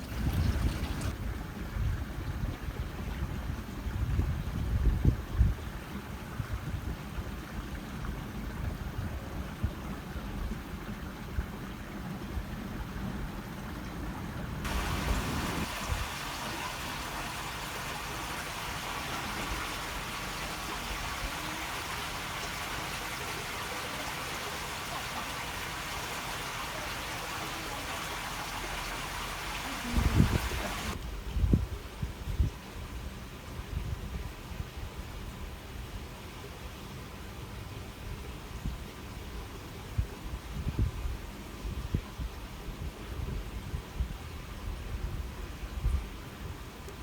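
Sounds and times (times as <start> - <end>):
water babbling: 0.0 - 1.7, 5.8 - 31.0
low uneven rumble: 0.0 - 31.0.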